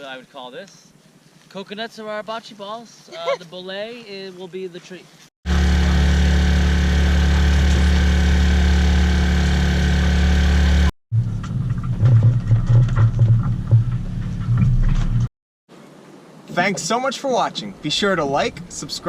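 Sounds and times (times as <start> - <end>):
small engine humming: 5.5 - 10.9
engine throbbing low note: 5.5 - 14.7.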